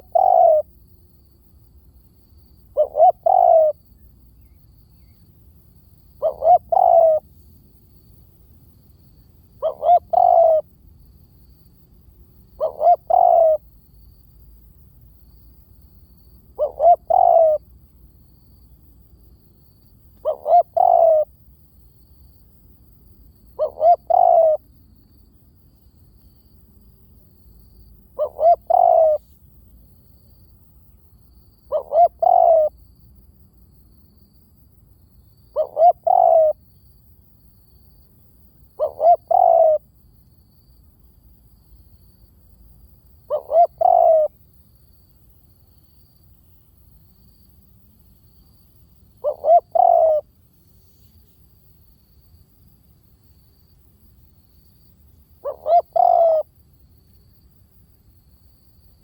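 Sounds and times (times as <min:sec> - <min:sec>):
dove cooing: 0:00.0 - 0:00.7, 0:02.7 - 0:03.8, 0:06.2 - 0:07.3, 0:09.6 - 0:10.7, 0:12.6 - 0:13.7, 0:16.5 - 0:17.6, 0:20.2 - 0:21.3, 0:23.6 - 0:24.6, 0:28.2 - 0:29.2, 0:31.7 - 0:32.8, 0:35.5 - 0:36.6, 0:38.8 - 0:39.8, 0:43.3 - 0:44.4, 0:49.2 - 0:50.3, 0:55.4 - 0:56.5.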